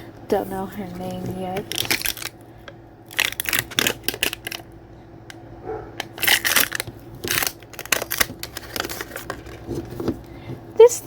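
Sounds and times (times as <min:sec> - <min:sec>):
plastic packaging crinkling: 0:00.8 - 0:04.7, 0:06.0 - 0:10.4.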